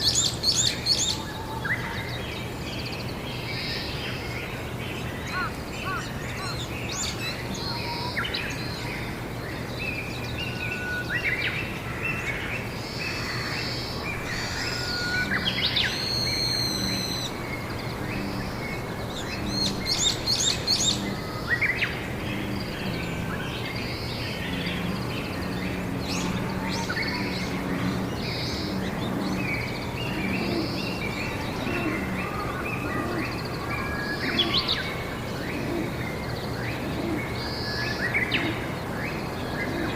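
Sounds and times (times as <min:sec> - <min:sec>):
wild birds chirping: 0:00.0 - 0:39.9
low steady hum: 0:12.6 - 0:37.3.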